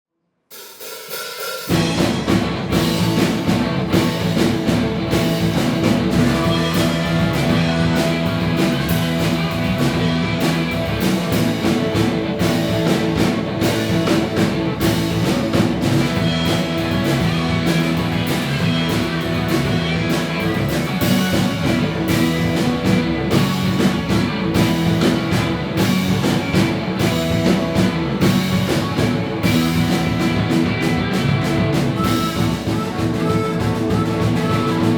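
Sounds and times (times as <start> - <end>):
drum kit: 0.5 - 34.9
rock band playing live: 1.6 - 34.9.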